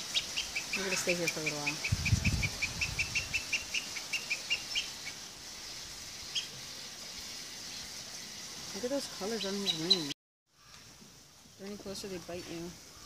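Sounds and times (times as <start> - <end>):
bird chirping rapidly: 0.0 - 5.2, 9.0 - 10.1.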